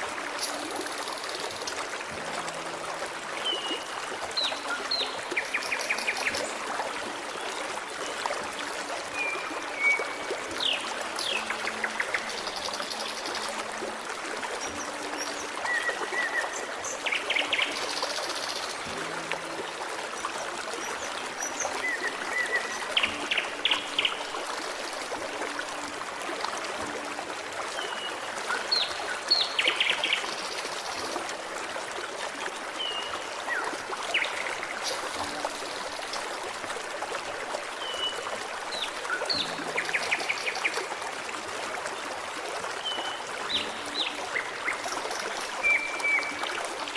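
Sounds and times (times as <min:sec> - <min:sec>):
forest stream babbling: 0:00.0 - 0:46.9.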